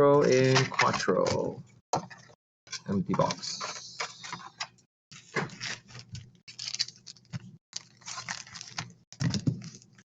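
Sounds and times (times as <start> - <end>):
card packaging rustling and crinkling: 3.0 - 10.0.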